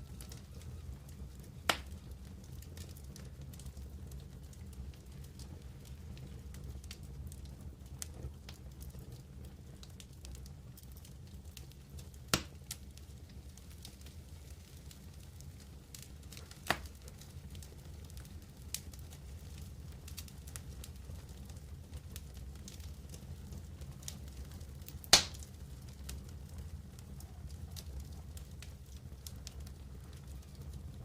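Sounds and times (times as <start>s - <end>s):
campfire crackling: 0.0s - 31.0s
sharp pops of fire: 1.4s - 2.1s, 12.3s - 12.8s, 16.0s - 17.3s, 24.8s - 25.6s.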